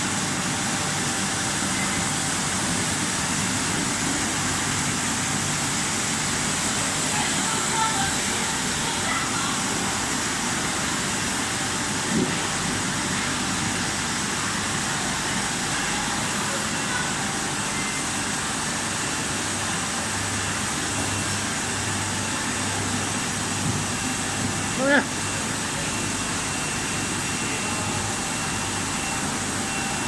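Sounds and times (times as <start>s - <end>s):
crate washing machine running: 0.0s - 30.0s.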